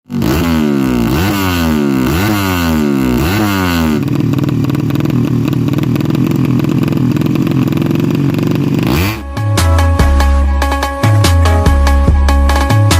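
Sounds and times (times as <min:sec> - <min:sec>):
motorcycle engine revving: 0:00.1 - 0:10.9.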